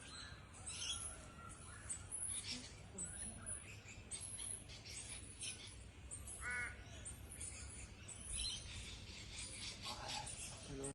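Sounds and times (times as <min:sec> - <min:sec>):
harsh crow-like call: 0:06.4 - 0:06.8.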